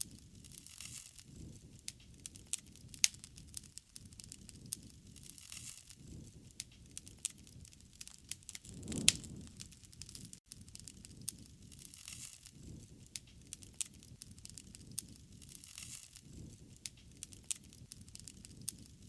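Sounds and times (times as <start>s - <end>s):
wood fire crackling and popping: 0.1s - 19.0s
low rush of flame: 8.0s - 10.4s.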